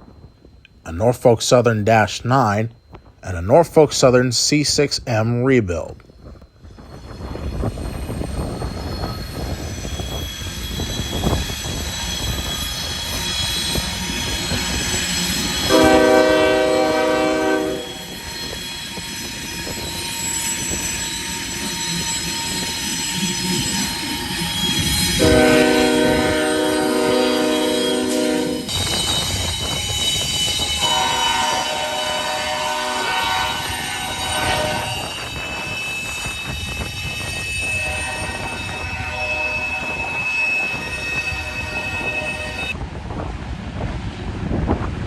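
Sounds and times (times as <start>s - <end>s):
diesel locomotives rolling: 0.0s - 45.0s
wheel flanges squealing on rail: 6.1s - 42.8s
locomotive air horn blasts: 15.7s - 18.1s, 25.2s - 28.7s, 30.8s - 35.5s, 37.6s - 42.8s.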